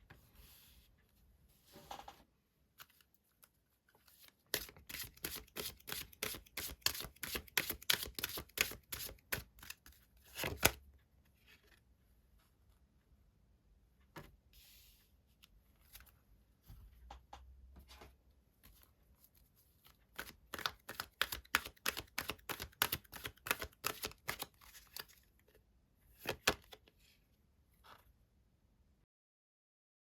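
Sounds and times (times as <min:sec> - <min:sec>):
cards shuffling: 0:04.5 - 0:10.8, 0:20.2 - 0:25.2.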